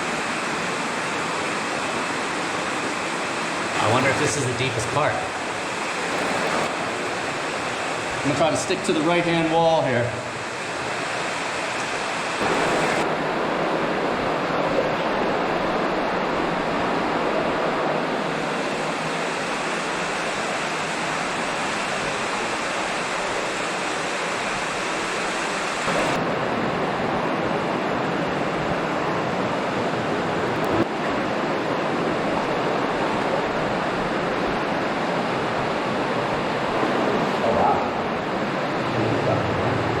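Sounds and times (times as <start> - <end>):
creek water flowing through tunnel: 0.0 - 40.0.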